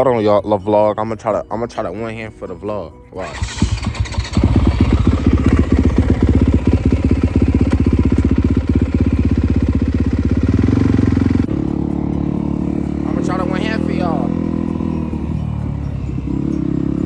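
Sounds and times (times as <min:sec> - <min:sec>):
dirt bike engine running: 0:03.2 - 0:17.0.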